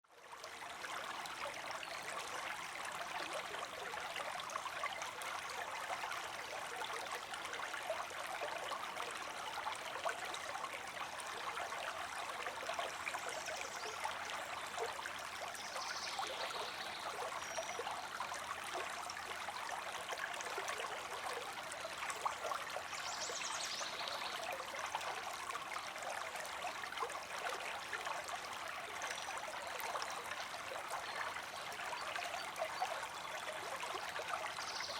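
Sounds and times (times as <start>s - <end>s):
river water flowing: 0.1s - 34.9s.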